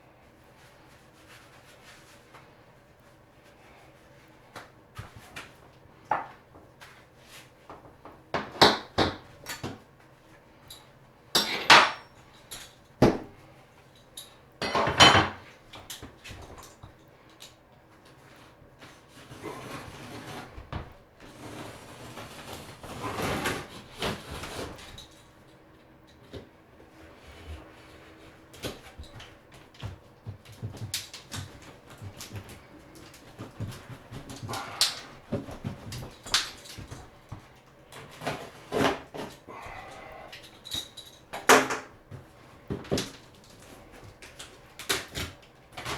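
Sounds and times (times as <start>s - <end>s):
drywall scraping and crunching: 18.8s - 25.0s, 38.0s - 39.4s.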